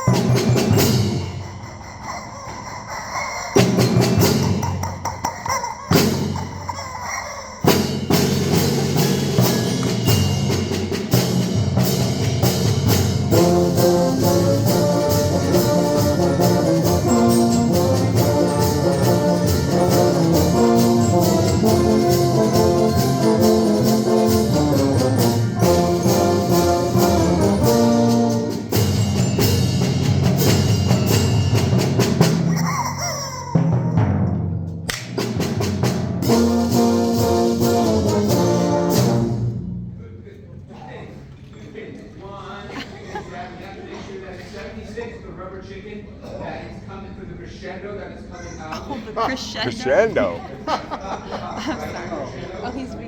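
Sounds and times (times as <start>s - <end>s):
rubber chicken squeaking: 0.0s - 7.8s
timpani: 0.0s - 40.0s
concert band playing a galop: 7.6s - 32.5s.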